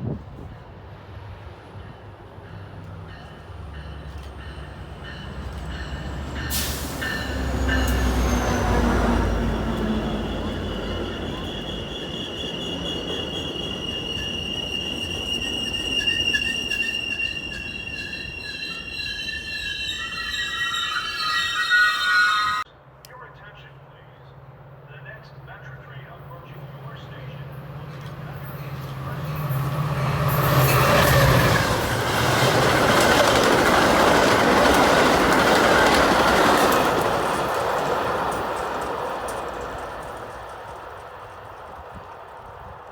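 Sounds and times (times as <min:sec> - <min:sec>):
train rumbling: 0:00.0 - 0:42.9
train wheels squealing: 0:01.8 - 0:22.7, 0:26.9 - 0:40.5
train wheels clattering: 0:27.9 - 0:42.9.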